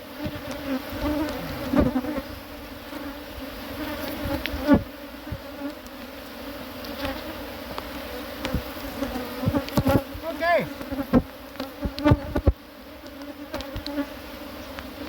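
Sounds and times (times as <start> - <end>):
honeybees buzzing: 0.0 - 15.0
wooden knocks of hive boxes: 0.2 - 2.2, 3.8 - 6.1, 6.8 - 14.0.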